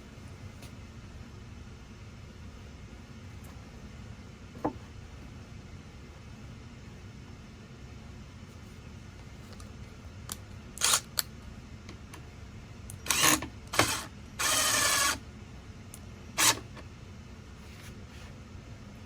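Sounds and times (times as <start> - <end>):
power drill driving screws: 13.1 - 15.2, 16.4 - 16.7.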